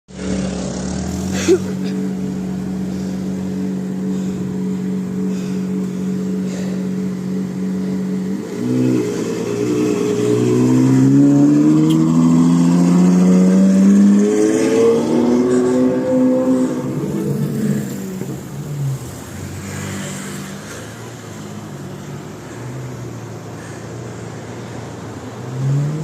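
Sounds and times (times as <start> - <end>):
car engine accelerating: 0.1 - 23.8.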